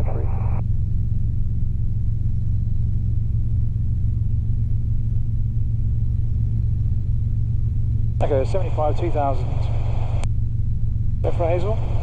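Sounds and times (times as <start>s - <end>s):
helicopter droning: 0.0s - 12.0s.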